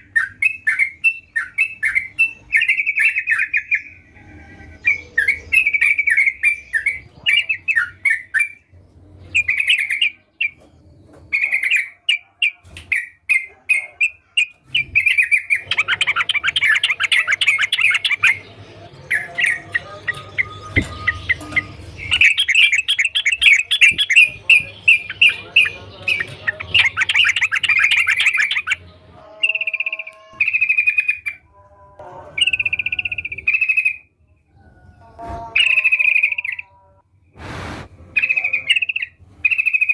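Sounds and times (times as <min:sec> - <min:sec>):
bird fast chattering: 0:11.3 - 0:28.9
bird singing bubbling notes: 0:14.8 - 0:31.4.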